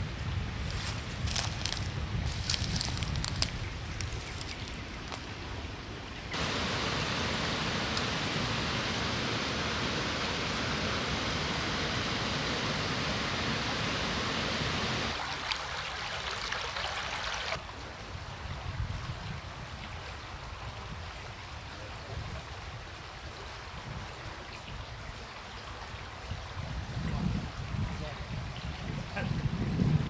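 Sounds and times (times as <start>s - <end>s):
brook water flowing: 0.5s - 29.6s.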